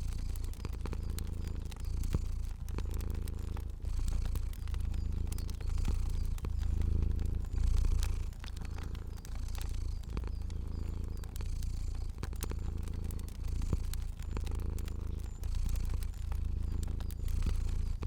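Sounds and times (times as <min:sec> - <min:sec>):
cat purring: 0:00.0 - 0:18.0
fire popping and crackling: 0:00.0 - 0:18.0.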